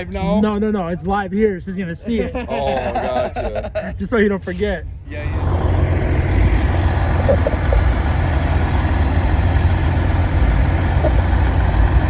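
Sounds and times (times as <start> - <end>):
truck engine idling: 5.1 - 12.0.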